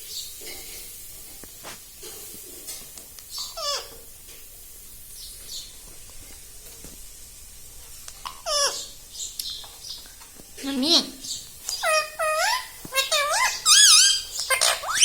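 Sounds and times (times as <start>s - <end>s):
parrot calling: 3.3s - 4.0s, 8.2s - 10.0s, 10.6s - 15.0s.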